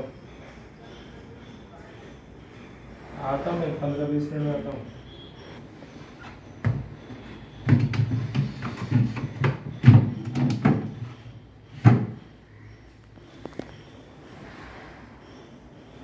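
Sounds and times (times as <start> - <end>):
refrigerator parts knocking: 6.6 - 12.3.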